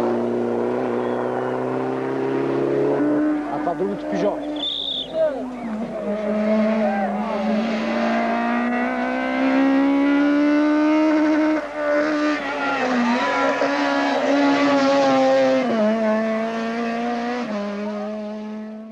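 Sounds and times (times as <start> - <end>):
rally car engine revving: 0.0 - 18.9.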